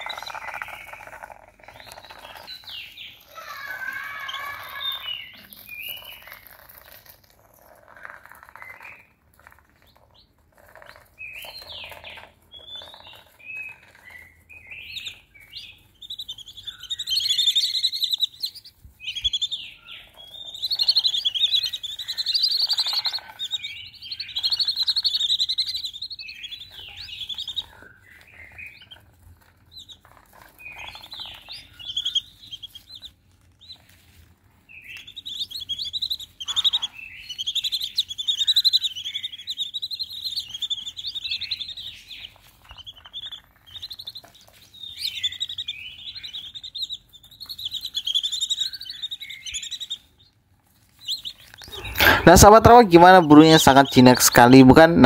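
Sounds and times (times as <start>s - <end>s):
ducks whistling calls: 35.0s - 43.9s, 51.1s - 54.1s.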